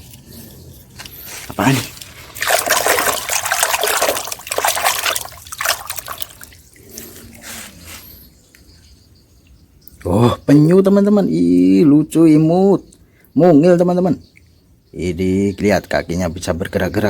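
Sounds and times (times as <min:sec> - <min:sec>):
tap water running and splashing: 0:01.6 - 0:06.8.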